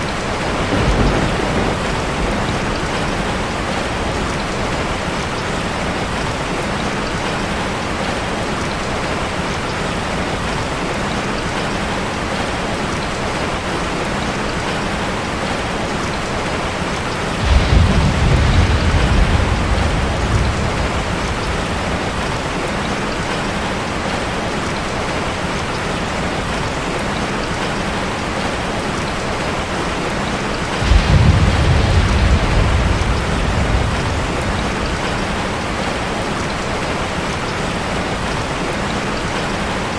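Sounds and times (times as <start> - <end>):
thunder rumbling: 0.0 - 5.8, 17.3 - 23.4, 30.6 - 37.2
rain drumming on metal roof: 0.0 - 39.9.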